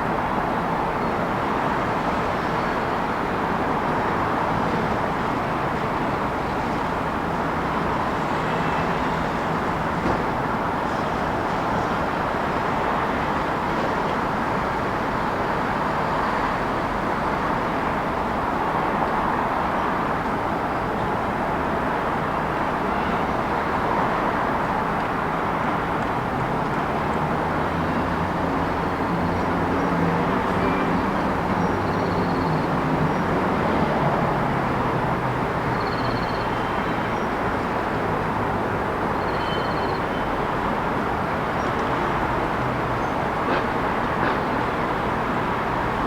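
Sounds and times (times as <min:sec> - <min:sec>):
city traffic noise: 0:00.0 - 0:46.0.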